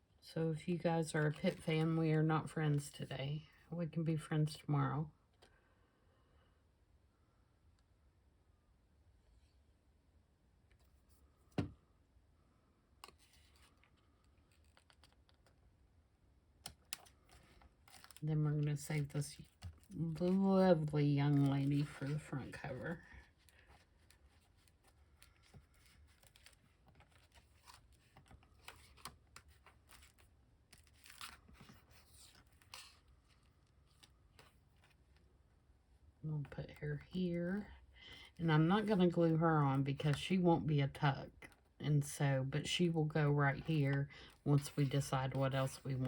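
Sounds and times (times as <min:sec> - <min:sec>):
light paper rustle: 0:16.8 - 0:35.3, 0:43.5 - 0:46.0.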